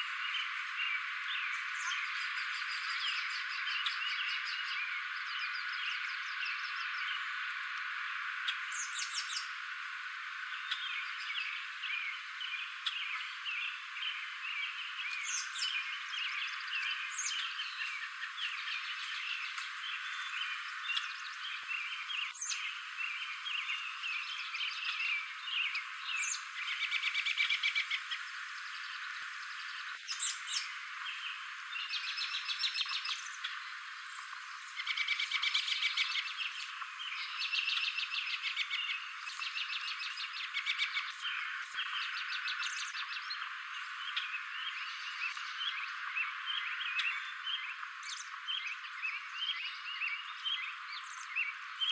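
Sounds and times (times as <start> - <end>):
background bird chatter: 0.0 - 51.9.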